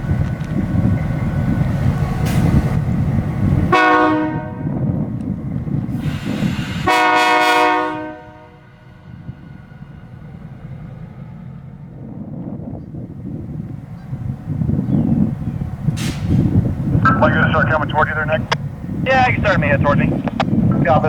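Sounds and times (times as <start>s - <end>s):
heavy low rumble: 0.0s - 6.9s, 8.0s - 21.0s
locomotive air horn blasts: 3.7s - 4.8s, 6.0s - 9.0s.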